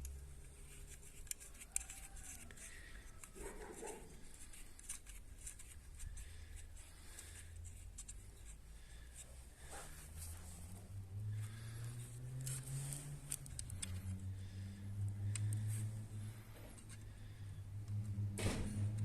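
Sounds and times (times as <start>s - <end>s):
small parts clicking and tapping: 0.0s - 9.3s, 11.4s - 17.1s.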